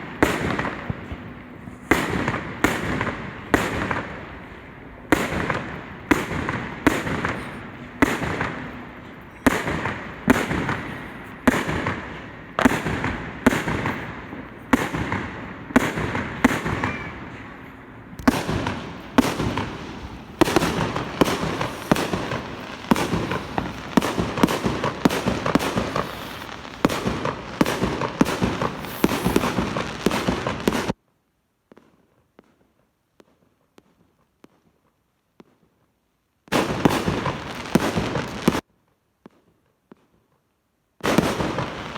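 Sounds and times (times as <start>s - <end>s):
fireworks bangs: 0.0s - 31.0s, 36.5s - 38.6s, 41.0s - 41.9s
fireworks crackling: 0.0s - 31.0s, 36.5s - 38.7s, 41.0s - 41.9s.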